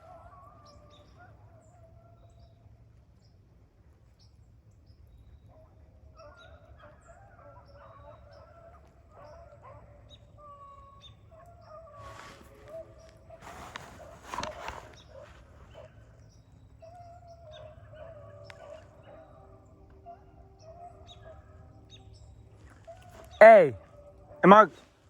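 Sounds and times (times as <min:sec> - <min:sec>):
hounds baying: 0:05.5 - 0:25.0.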